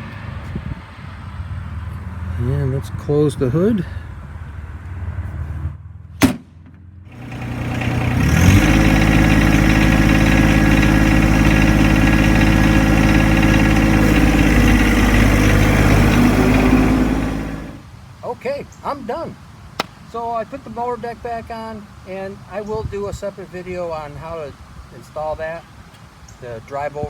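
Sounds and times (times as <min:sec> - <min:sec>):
tractor hood bang: 0:06.2 - 0:06.8
diesel engine starting and idling: 0:07.1 - 0:17.8.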